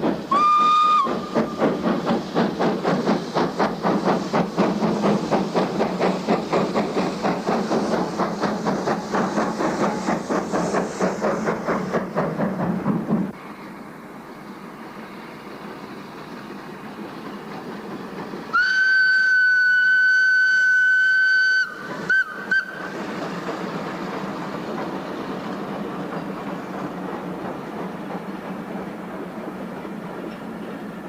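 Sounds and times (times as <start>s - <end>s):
train running noise: 0.0s - 31.0s
steam locomotive whistle: 0.3s - 1.6s, 18.5s - 23.0s.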